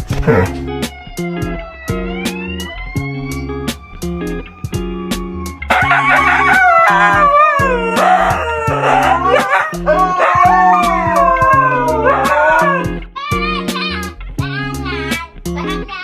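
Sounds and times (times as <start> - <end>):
background music: 0.0 - 16.0
dog howling: 0.1 - 0.6, 5.7 - 13.0.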